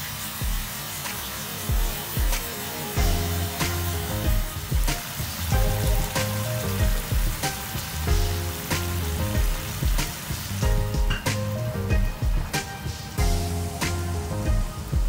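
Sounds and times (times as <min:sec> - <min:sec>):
meat sizzling in a frying pan: 0:00.0 - 0:15.0
background music with a beat: 0:00.3 - 0:15.0.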